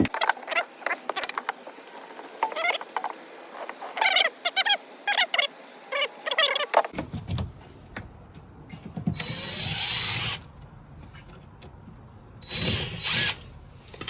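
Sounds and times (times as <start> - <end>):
handheld power tool running: 9.2 - 10.4, 12.5 - 13.5.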